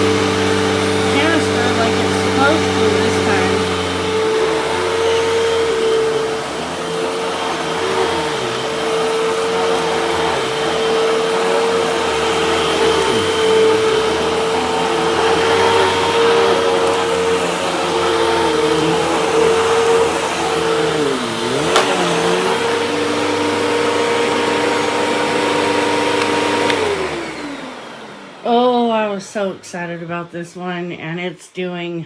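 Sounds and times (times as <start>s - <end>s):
vacuum cleaner running: 0.0s - 31.9s.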